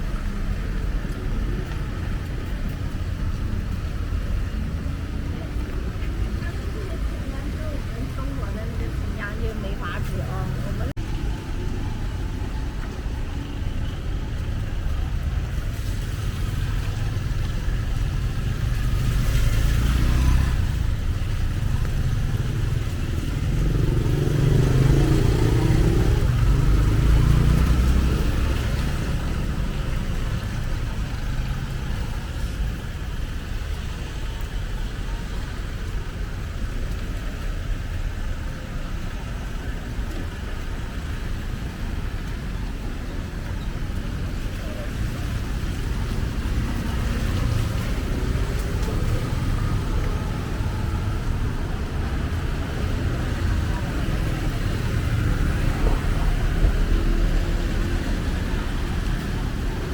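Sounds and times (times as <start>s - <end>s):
low rumble of traffic: 0.0s - 59.9s
vehicle passing: 18.0s - 32.0s, 44.4s - 59.9s.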